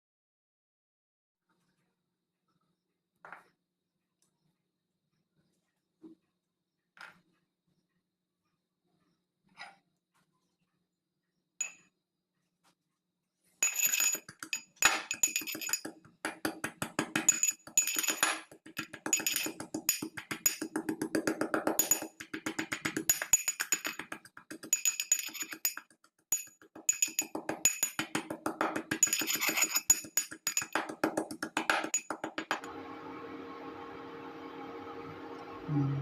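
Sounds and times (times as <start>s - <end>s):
metal utensil striking cookware: 13.6s - 20.8s, 21.8s - 31.0s.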